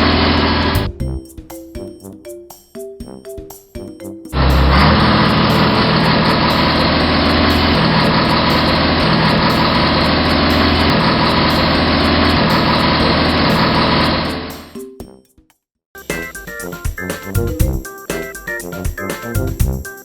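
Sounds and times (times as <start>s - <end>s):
truck engine running: 4.4s - 14.6s.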